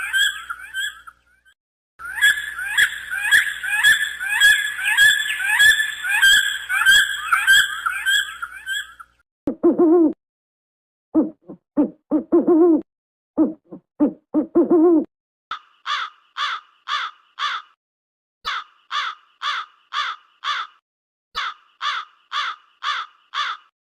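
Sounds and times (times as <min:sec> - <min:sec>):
owl hooting: 0:00.0 - 0:01.1, 0:02.0 - 0:09.0
crow cawing: 0:15.8 - 0:17.8, 0:18.5 - 0:20.8, 0:21.4 - 0:23.7.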